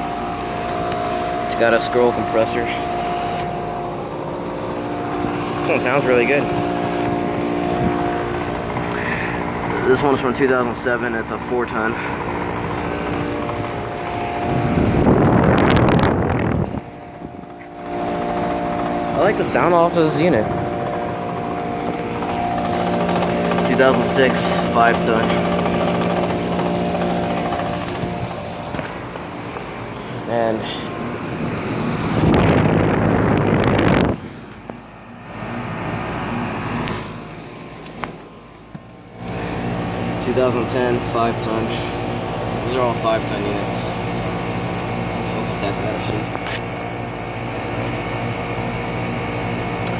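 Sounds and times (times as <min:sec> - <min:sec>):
air conditioner compressor hum: 0:00.0 - 0:49.9
condenser fan whirring: 0:00.0 - 0:49.9
rush of air on microphone: 0:31.9 - 0:34.4.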